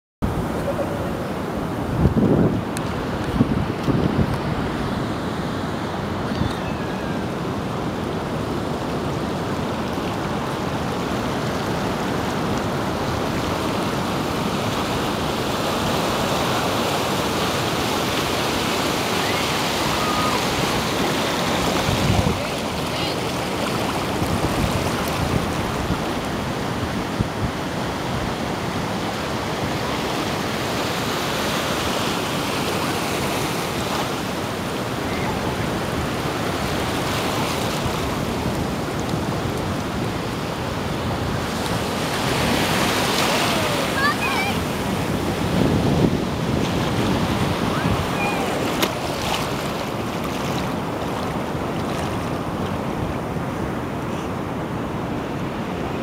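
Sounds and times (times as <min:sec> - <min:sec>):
wind on microphone: 0:00.2 - 0:31.1, 0:32.4 - 0:56.0
sea waves breaking: 0:00.2 - 0:56.0.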